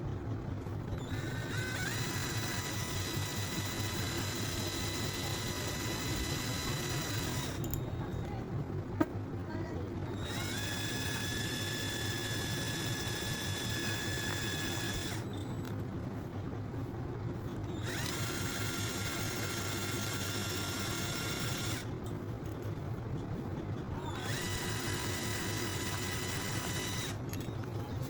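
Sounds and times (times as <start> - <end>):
steady low hum: 0.0 - 28.0
small motor whirring: 0.9 - 8.0, 10.1 - 15.7, 17.7 - 21.9, 24.0 - 27.5.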